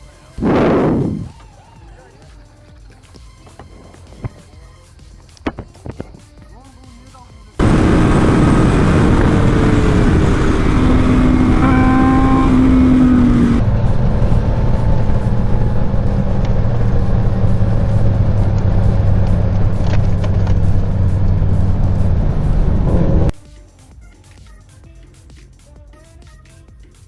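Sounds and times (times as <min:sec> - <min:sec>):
rushing noise: 0:00.4 - 0:01.3, 0:07.6 - 0:23.3
vehicle engine running: 0:00.4 - 0:01.3, 0:07.6 - 0:23.3
low engine hum: 0:00.4 - 0:01.4, 0:07.6 - 0:23.4.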